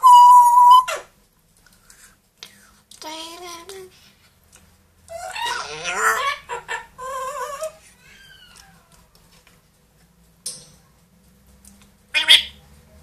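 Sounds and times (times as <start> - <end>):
falling whistle: 0.0 - 0.9
parrot calling: 0.0 - 1.1, 5.1 - 9.0, 12.1 - 12.6.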